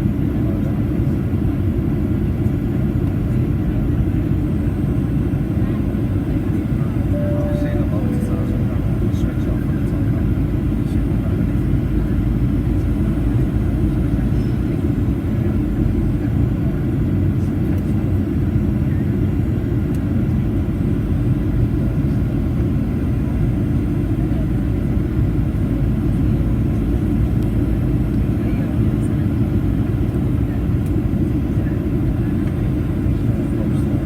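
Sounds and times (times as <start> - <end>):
airplane cabin engine rumble: 0.0 - 34.0.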